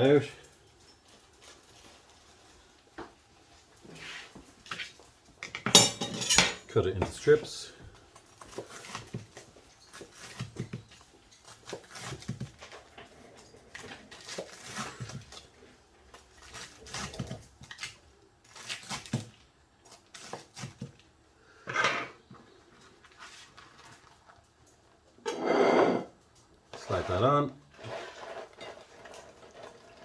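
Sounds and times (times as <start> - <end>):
knife clatter: 5.6 - 6.7.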